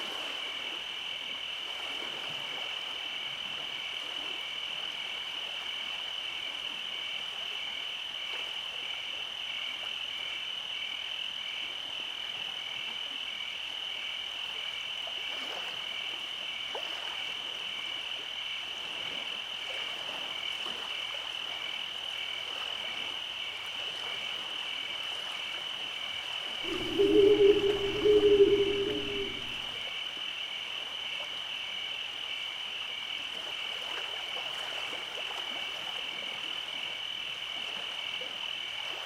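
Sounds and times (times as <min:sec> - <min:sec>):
high trill of frogs and insects: 0:26.6 - 0:29.8
pulsing call: 0:26.6 - 0:29.8.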